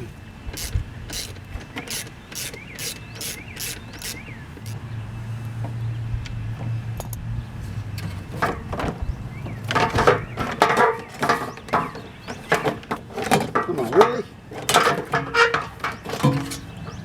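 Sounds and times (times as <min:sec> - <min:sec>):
ratchet clicks: 0:00.5 - 0:04.8
tools knocking and rattling: 0:00.5 - 0:04.8, 0:08.0 - 0:09.0, 0:09.6 - 0:17.0.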